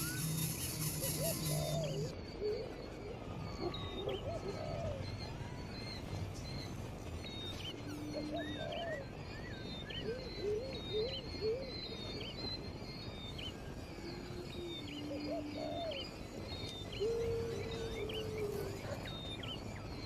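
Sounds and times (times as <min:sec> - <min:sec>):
short rising and falling whistles: 0:00.0 - 0:02.1
thin high bird chirps: 0:00.0 - 0:02.1.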